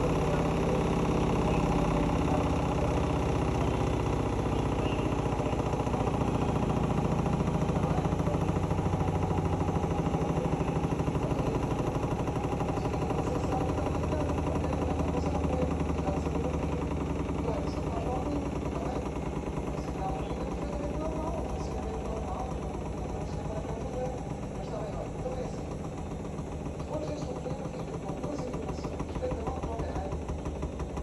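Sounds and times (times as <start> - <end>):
washing machine running: 0.0 - 31.0.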